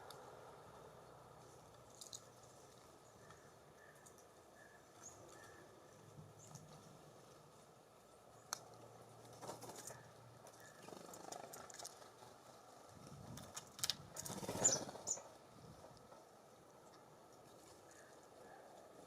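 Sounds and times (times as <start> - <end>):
birds pecking taps and scratches: 8.5 - 12.2
wing rustling flurry: 9.2 - 15.4
high bird chirp: 14.4 - 15.3.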